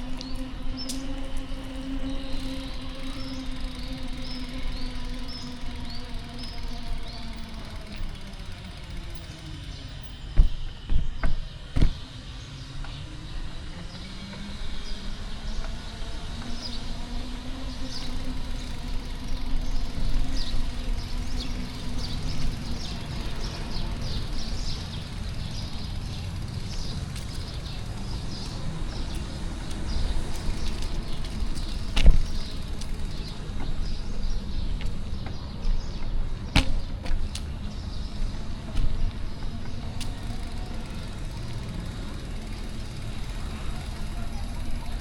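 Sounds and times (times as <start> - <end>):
passing engine hum: 0.0 - 45.0
street traffic rumble: 0.0 - 45.0
sharp knocks: 10.3 - 12.0.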